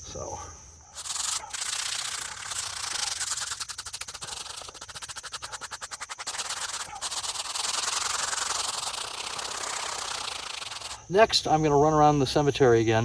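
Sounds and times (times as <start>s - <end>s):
brush scrubbing stone: 0.9s - 11.0s.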